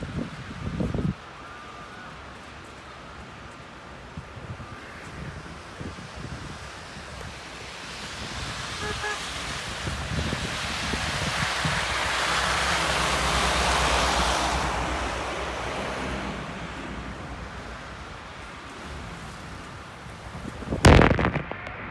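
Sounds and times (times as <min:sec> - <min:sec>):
vehicle passing on snow: 0:05.4 - 0:21.9.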